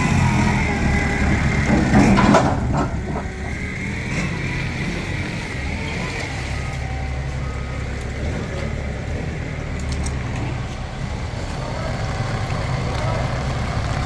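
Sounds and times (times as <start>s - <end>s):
heavy diesel engine running: 0.0s - 14.0s.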